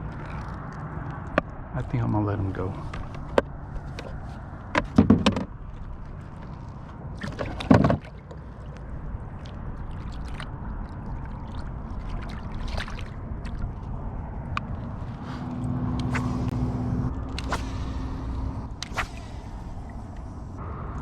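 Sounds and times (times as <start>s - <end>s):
wind and water noise: 0.0s - 21.0s
loud splash: 15.2s - 20.2s.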